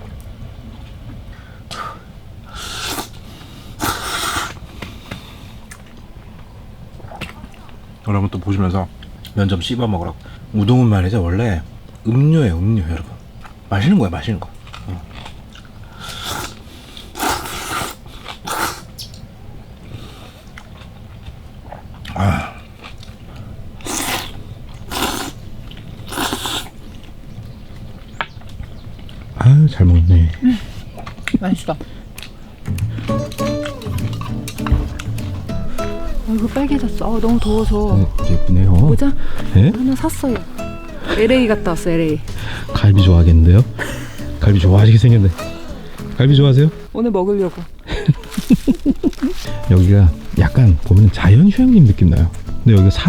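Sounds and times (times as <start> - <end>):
noodles being slurped: 2.5 - 5.0, 14.8 - 19.0, 22.0 - 27.2, 48.1 - 51.1.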